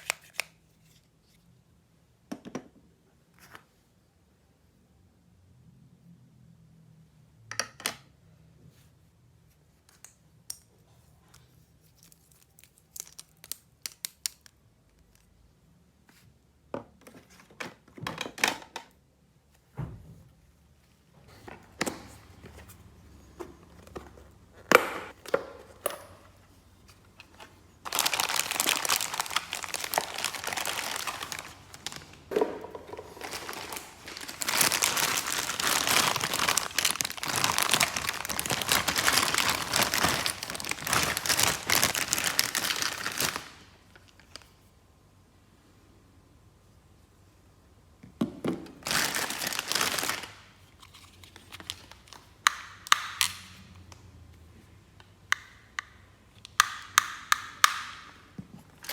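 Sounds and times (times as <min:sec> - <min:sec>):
plastic wrapping crinkling: 0:11.8 - 0:15.2, 0:27.2 - 0:44.5, 0:48.8 - 0:53.3.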